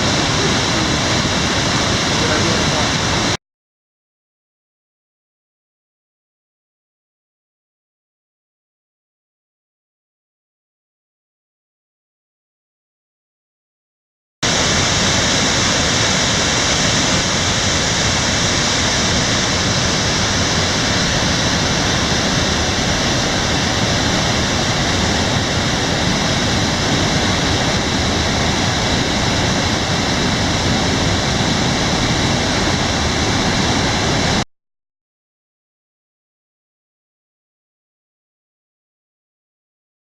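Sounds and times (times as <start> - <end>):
heavy rain falling: 0.0 - 3.4.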